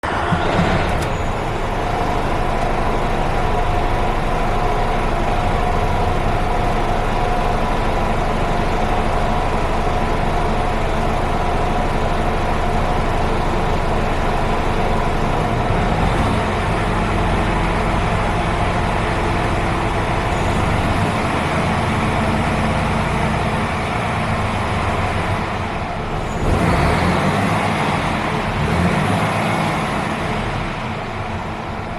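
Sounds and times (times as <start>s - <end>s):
diesel truck engine running: 0.0s - 31.9s.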